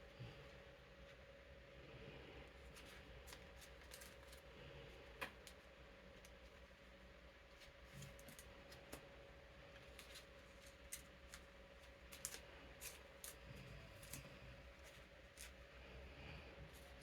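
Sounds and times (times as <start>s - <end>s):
electric fan humming: 0.0s - 17.0s
cards crinkling in plastic sleeves: 2.7s - 4.5s, 9.8s - 15.6s.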